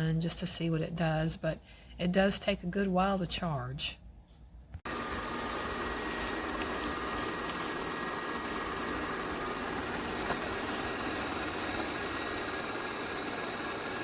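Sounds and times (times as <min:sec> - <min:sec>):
robot vacuum running: 0:04.9 - 0:14.0.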